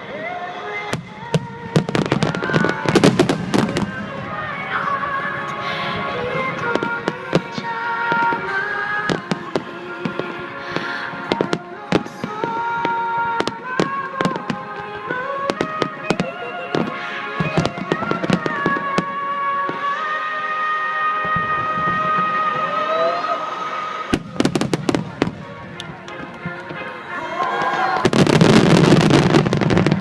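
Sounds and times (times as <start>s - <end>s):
music with held notes: 0.0s - 30.0s
fireworks bursting with sharp bangs: 0.2s - 30.0s.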